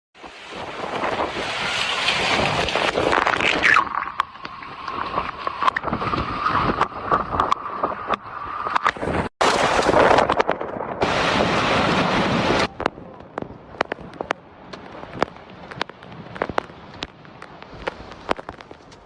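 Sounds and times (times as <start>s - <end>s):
wind and rain rushing: 0.2s - 19.0s
hailstones striking hard surfaces: 9.4s - 19.0s.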